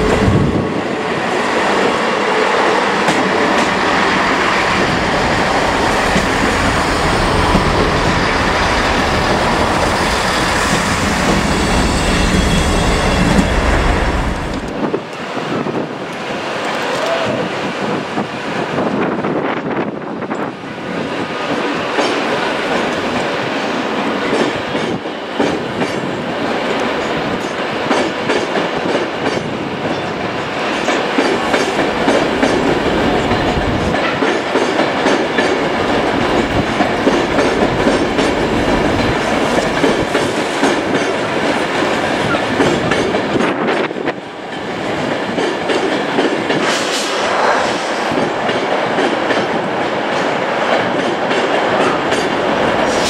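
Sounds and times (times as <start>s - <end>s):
train wheels clattering over rail joints: 30.8s - 47.1s, 47.7s - 53.0s.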